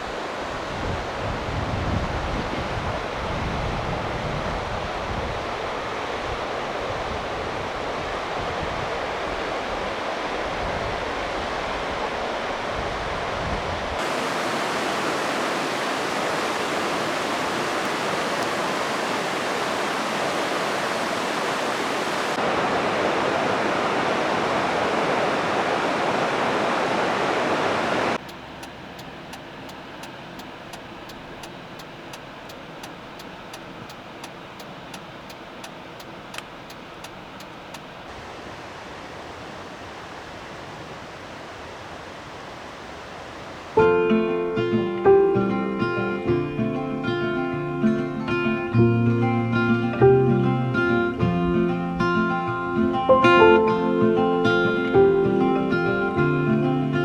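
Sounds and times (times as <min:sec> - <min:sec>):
wind buffeting microphone: 0:00.0 - 0:28.2
rushing waterfall: 0:00.0 - 0:44.0
faint regular ticking: 0:28.2 - 0:38.0.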